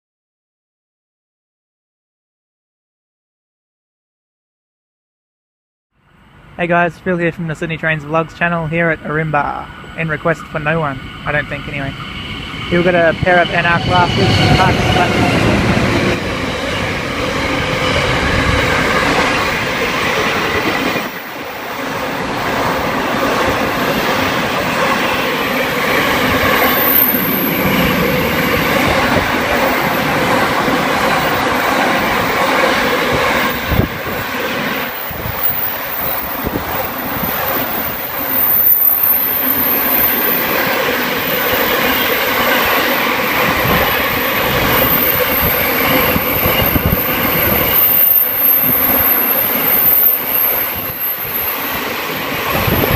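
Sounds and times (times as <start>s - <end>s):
diesel locomotive engines droning: 6.0s - 52.9s.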